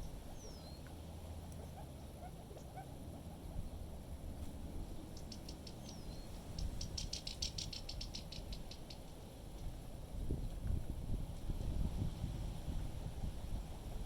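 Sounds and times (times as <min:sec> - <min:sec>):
wind rumble on microphone: 0:03.4 - 0:14.0
small animal chattering clicks: 0:05.1 - 0:09.2.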